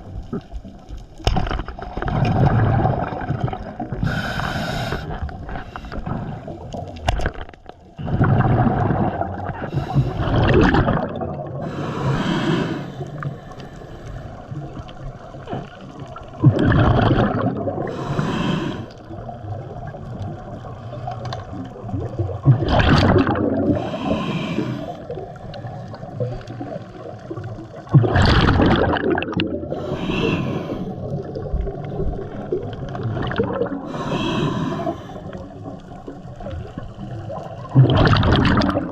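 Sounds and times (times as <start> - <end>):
gurgling exhaled bubbles: 0.0 - 38.9
regulator hissing inhale: 4.0 - 6.5, 9.6 - 10.3, 11.6 - 14.4, 17.9 - 19.0, 23.7 - 25.1, 29.7 - 31.1, 33.8 - 35.4.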